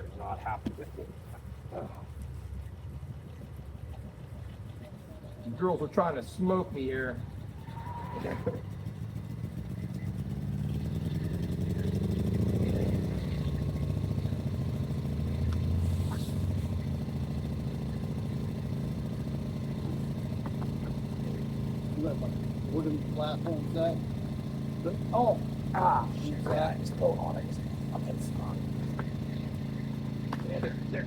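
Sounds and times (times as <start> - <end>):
generator engine running: 0.0 - 31.0.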